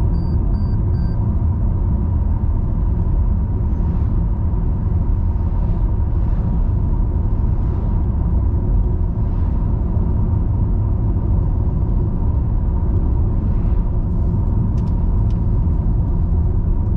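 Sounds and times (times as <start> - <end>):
car tyres and engine rumble: 0.0 - 16.9.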